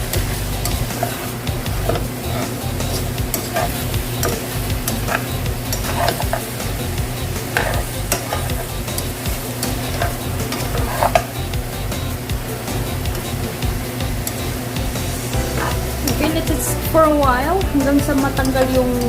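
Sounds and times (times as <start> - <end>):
utensil scraping a pan: 0.0 - 12.1, 14.3 - 16.5
chicken sizzling in a pan: 0.0 - 19.0
steady low hum: 0.0 - 19.0.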